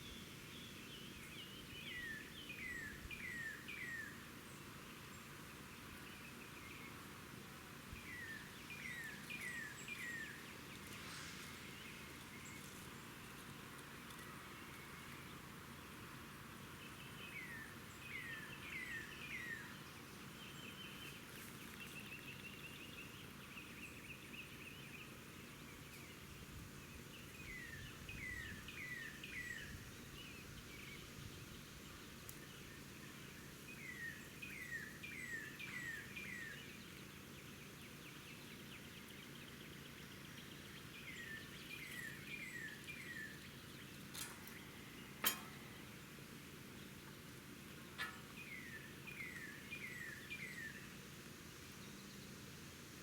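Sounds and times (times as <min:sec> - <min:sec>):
faint songbird calls: 0:14.0 - 0:52.4.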